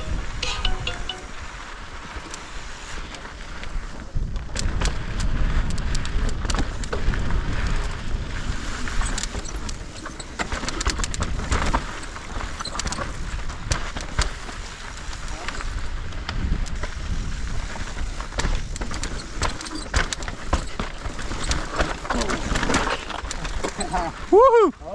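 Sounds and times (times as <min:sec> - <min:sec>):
mountain bike chain and frame clatter: 0:01.6 - 0:24.3
wind rumble on microphone: 0:01.8 - 0:09.9, 0:13.0 - 0:19.1.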